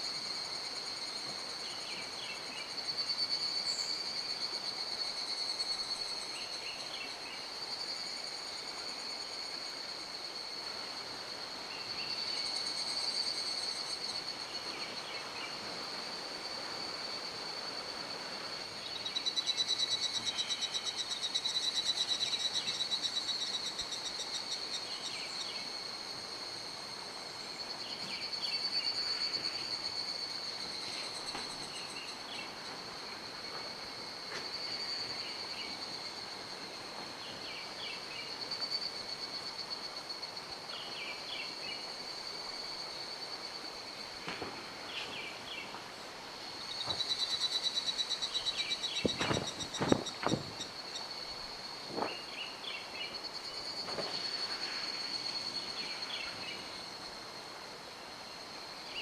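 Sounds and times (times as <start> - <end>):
insect pulsing trill: 11.7 - 44.3, 46.6 - 57.2.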